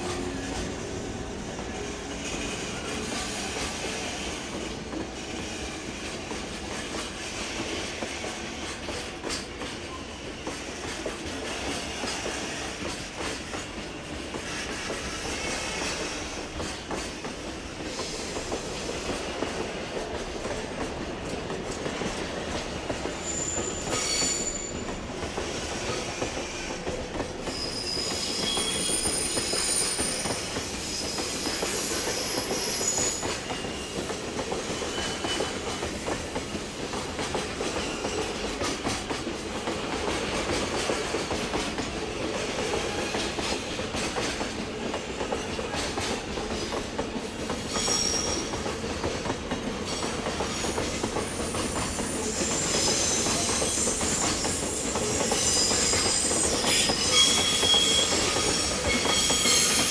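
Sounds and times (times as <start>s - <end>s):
freight train rumbling past: 0.0s - 59.9s
high wheel squeals: 23.2s - 24.9s, 27.4s - 35.6s, 47.7s - 48.5s, 50.5s - 59.9s.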